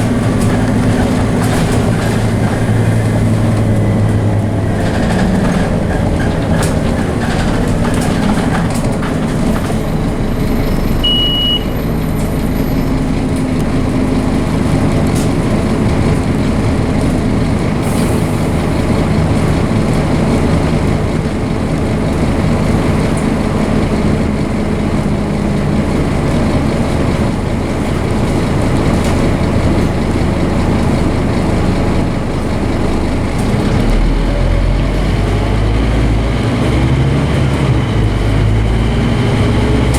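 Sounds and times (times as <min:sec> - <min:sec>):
bus diesel engine accelerating: 0:00.0 - 0:39.9
short high beep: 0:10.7 - 0:11.8.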